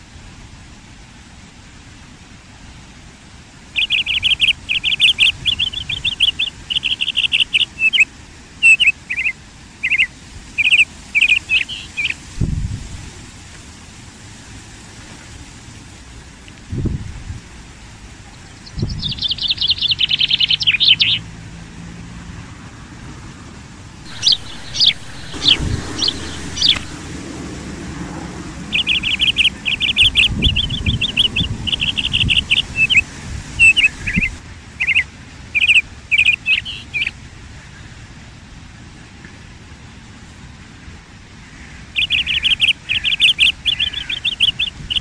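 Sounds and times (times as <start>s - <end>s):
low background rumble: 23.9s - 34.8s
small bird trilling: 24.1s - 27.0s, 28.7s - 33.0s.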